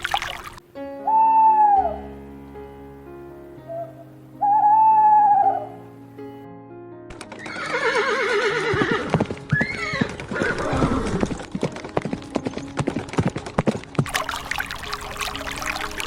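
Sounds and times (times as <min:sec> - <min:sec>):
hooves clip-clopping: 0:07.1 - 0:15.4
horse whinnying: 0:07.3 - 0:11.4.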